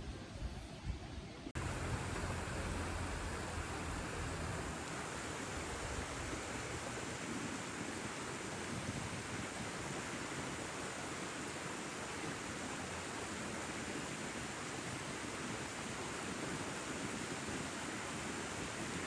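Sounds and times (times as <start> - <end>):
steady rushing noise: 1.5 - 10.2.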